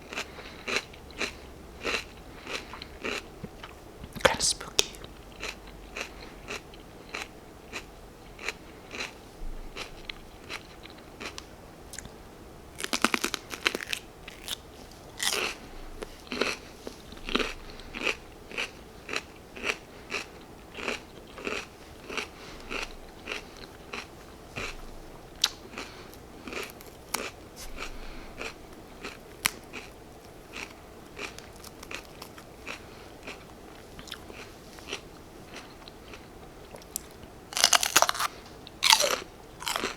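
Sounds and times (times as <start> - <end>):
crisp bites and chewing: 12.8 - 15.6, 36.7 - 39.9.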